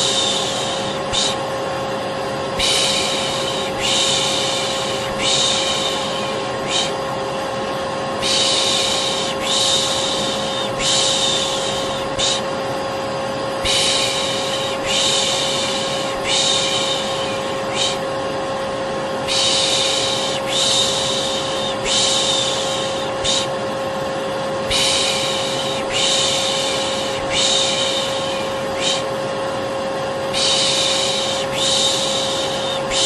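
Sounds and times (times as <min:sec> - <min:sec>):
person shushing: 0:00.0 - 0:01.4, 0:02.6 - 0:07.0, 0:08.2 - 0:12.5, 0:13.6 - 0:18.1, 0:19.3 - 0:23.6, 0:24.7 - 0:29.2, 0:30.3 - 0:33.0
vacuum cleaner running: 0:00.0 - 0:33.0.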